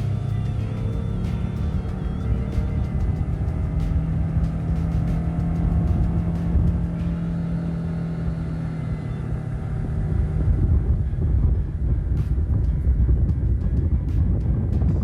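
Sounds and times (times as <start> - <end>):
boat moving through water: 0.0 - 15.0
outboard engine drone: 0.0 - 15.0.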